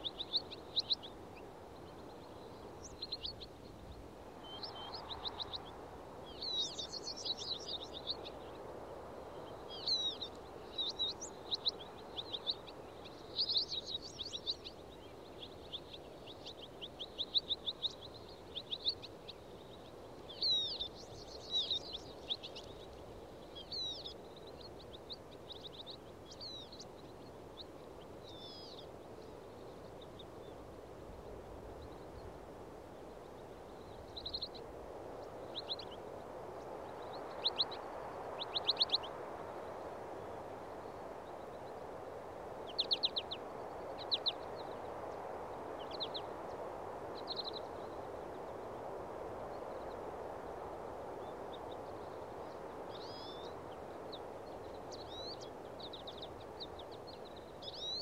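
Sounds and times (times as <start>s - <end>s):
low outdoor background rush: 0.0s - 58.0s
songbirds chirping and trilling: 0.0s - 58.0s.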